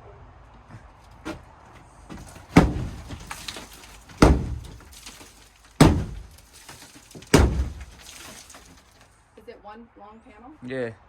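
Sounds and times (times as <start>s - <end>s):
heavy blows on shed wall: 1.2s - 9.0s
panel rattling: 2.1s - 8.9s.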